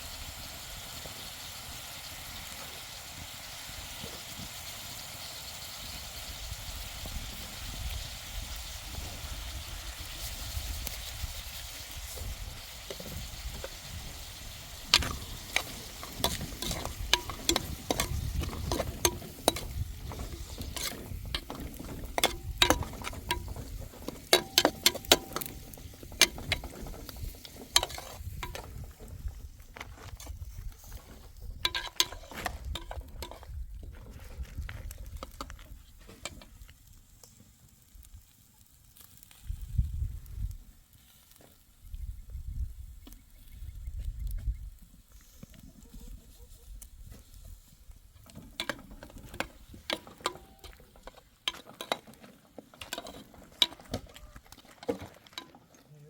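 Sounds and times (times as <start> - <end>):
food sizzling: 0.0 - 33.8, 47.0 - 55.5
utensil clinking in frying pan: 14.8 - 28.7, 48.6 - 52.1.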